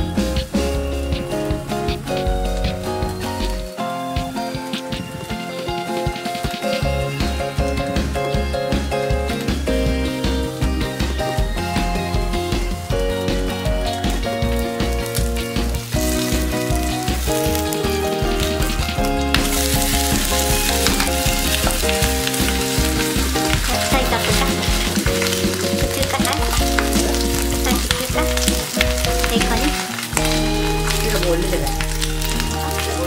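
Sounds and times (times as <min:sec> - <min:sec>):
background music: 0:00.0 - 0:33.0
pancake sizzling in oil: 0:12.8 - 0:33.0.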